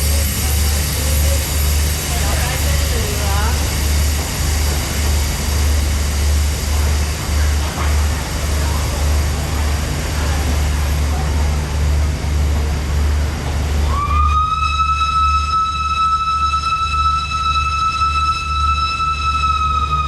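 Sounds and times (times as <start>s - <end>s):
train whistle blast: 13.8s - 20.0s.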